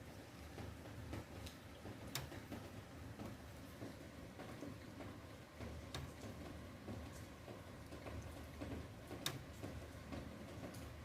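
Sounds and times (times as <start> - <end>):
rain drops on hard surface: 0.0 - 11.0.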